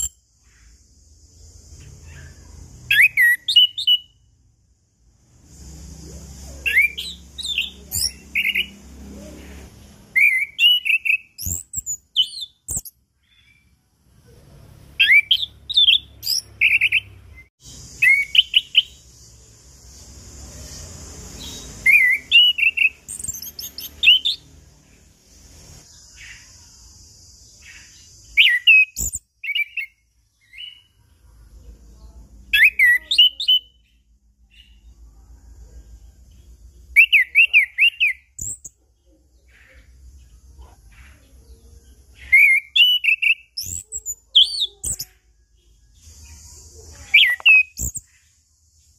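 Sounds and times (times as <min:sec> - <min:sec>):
thrush singing high whistles: 0:00.0 - 0:04.5, 0:05.4 - 0:08.9, 0:10.0 - 0:13.0, 0:15.0 - 0:24.6, 0:27.5 - 0:30.9, 0:42.2 - 0:45.1.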